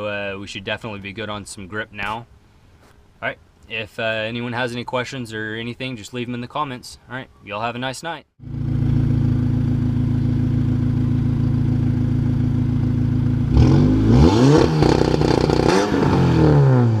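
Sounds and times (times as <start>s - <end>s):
car engine revving: 8.4s - 17.0s.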